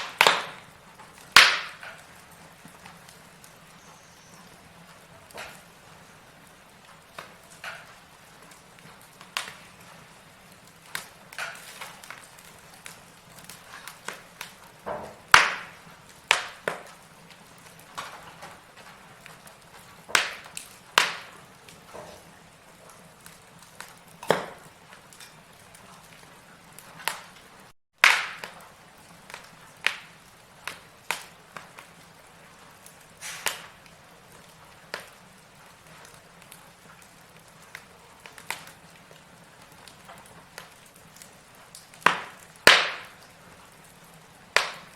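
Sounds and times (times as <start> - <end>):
wood fire crackling and popping: 0.0 - 44.9
faint hiss: 32.7 - 33.8.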